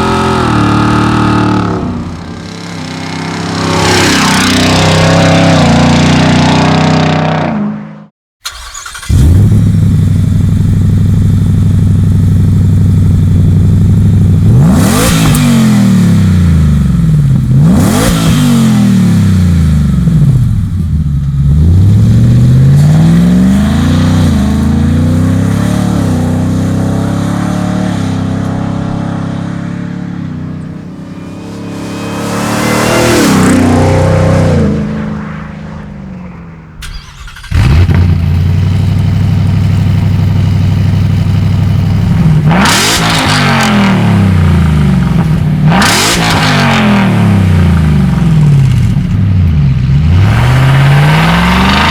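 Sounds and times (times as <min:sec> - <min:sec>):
car engine exhaust revving: 0:08.4 - 0:36.0, 0:36.6 - 0:51.9.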